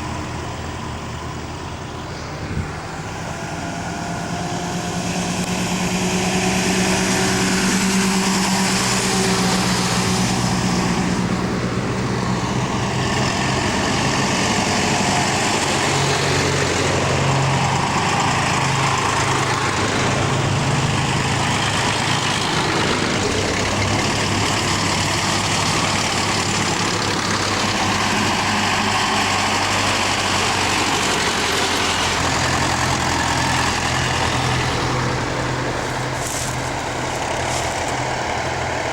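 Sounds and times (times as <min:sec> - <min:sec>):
diesel tractor engine running: 0:00.0 - 0:38.9
continuous rushing noise: 0:29.3 - 0:38.9.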